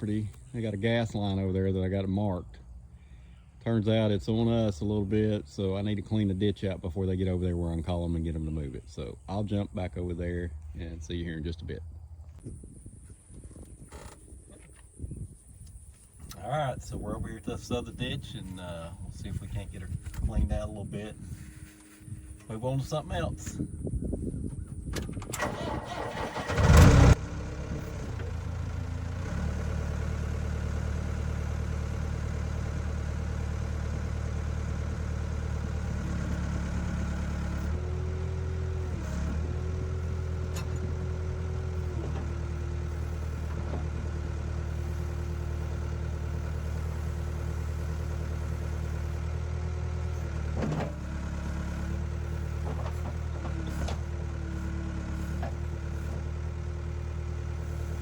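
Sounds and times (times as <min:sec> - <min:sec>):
steady whine: 0:15.6 - 0:26.5
heavy equipment engine running: 0:16.0 - 0:58.0.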